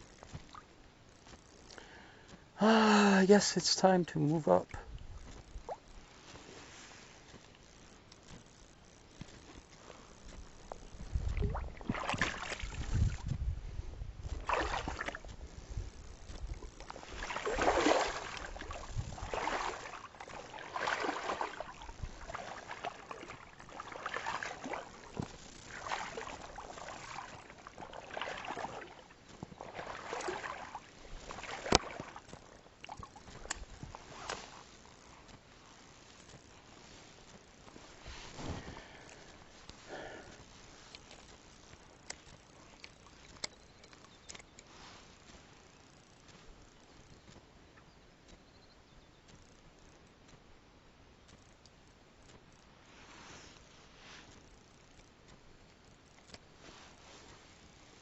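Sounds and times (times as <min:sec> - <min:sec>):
paddle splashing in water: 0:11.1 - 0:13.4, 0:14.2 - 0:34.8.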